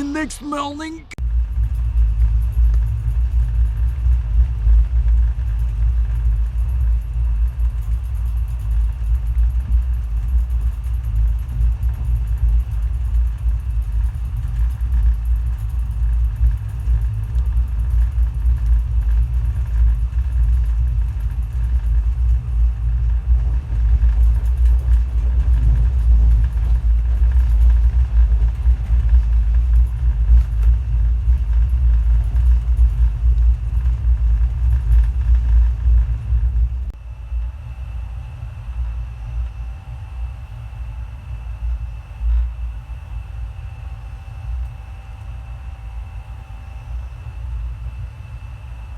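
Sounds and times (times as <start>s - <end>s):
moving train rumble: 0.0s - 37.9s.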